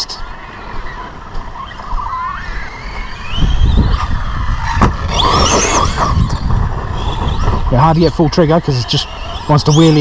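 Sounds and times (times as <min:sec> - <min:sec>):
tyres scrabbling over ground: 0:00.3 - 0:10.0
electric motor whining: 0:00.6 - 0:07.8.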